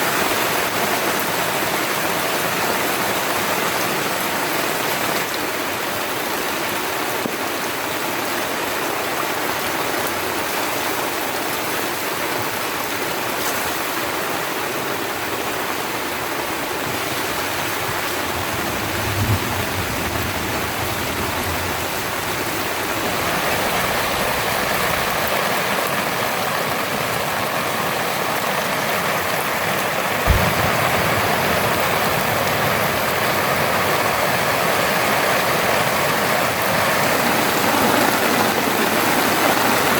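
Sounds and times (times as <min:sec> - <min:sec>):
heavy rain: 0:00.0 - 0:39.9
low thumps: 0:30.3 - 0:33.5.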